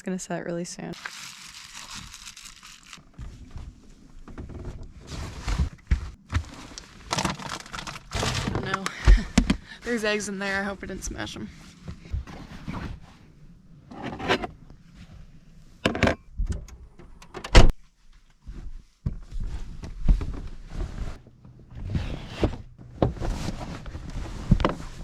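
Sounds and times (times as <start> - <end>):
hands rummaging through food containers: 1.0 - 3.0, 5.7 - 9.4.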